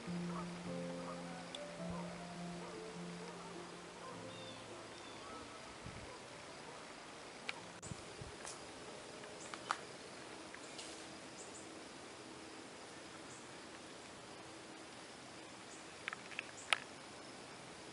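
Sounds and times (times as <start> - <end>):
background music: 0.0 - 6.8
faint outdoor ambience: 0.0 - 17.9.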